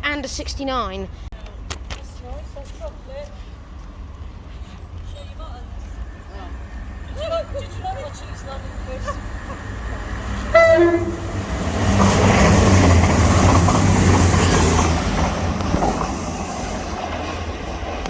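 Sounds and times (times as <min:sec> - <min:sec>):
train wheels rushing on rails: 0:02.2 - 0:18.0
two-tone train horn: 0:10.4 - 0:11.7.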